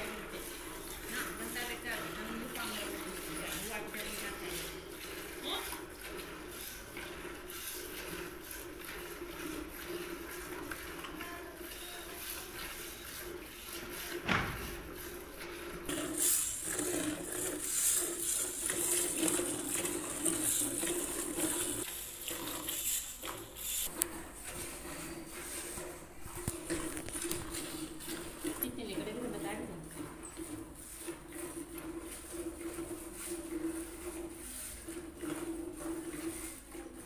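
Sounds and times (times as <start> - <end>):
milk squirting into a pail: 0.0 - 37.0
single knock: 14.2 - 14.7.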